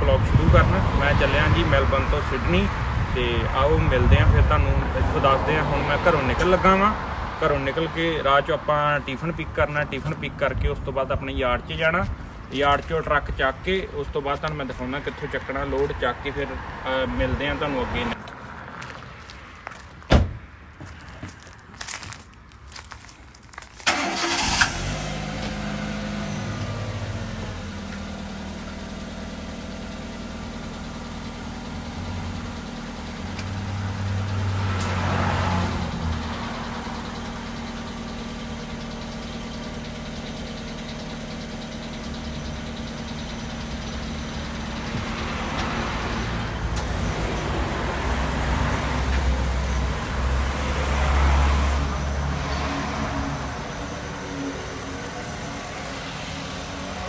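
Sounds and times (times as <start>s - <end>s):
car engine driving off: 23.8s - 57.0s.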